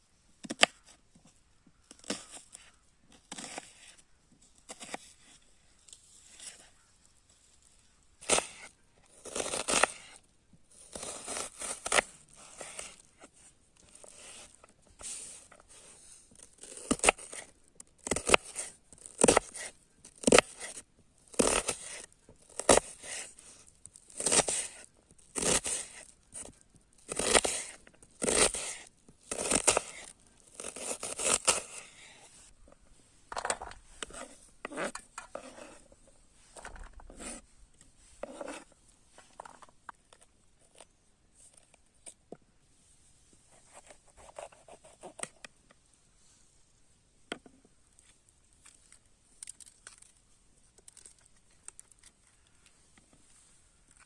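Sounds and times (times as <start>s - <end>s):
rustling tearing scrapes of food: 6.0s - 32.6s.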